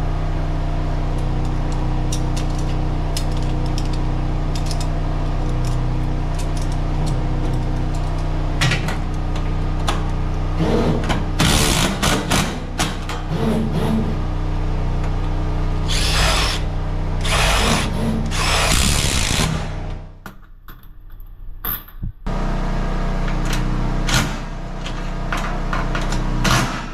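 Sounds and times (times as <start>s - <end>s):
steady low hum: 0.0s - 26.9s
power drill running: 15.8s - 19.7s.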